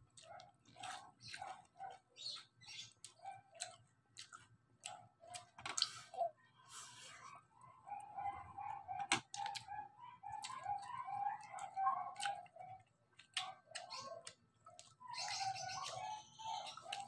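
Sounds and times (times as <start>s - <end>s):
crunchy chewing: 0.0s - 17.0s
bird chirping: 1.2s - 3.3s, 13.7s - 17.0s.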